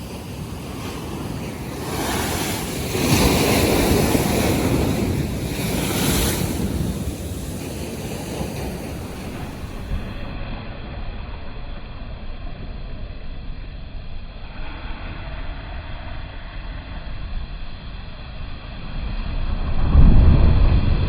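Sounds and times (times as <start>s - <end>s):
sea waves surging: 0.0s - 10.4s
wind buffeting microphone: 0.0s - 10.4s.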